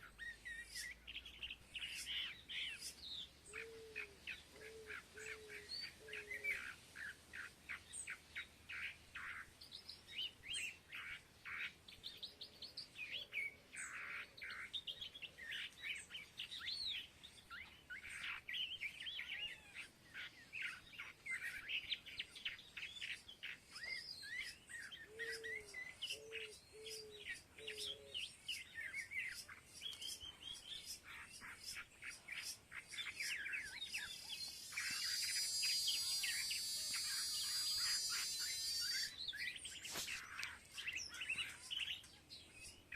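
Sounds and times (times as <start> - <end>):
small birds chirping: 0.0 - 42.9
lower bird call: 1.8 - 9.4, 23.8 - 28.3, 32.4 - 41.8.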